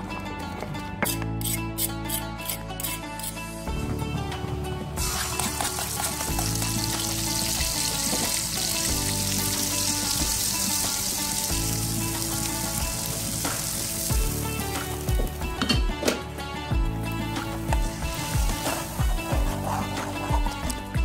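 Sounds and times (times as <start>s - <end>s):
background music with held notes: 0.0s - 21.0s
spice paste sizzling in oil: 5.0s - 15.6s, 17.0s - 20.9s.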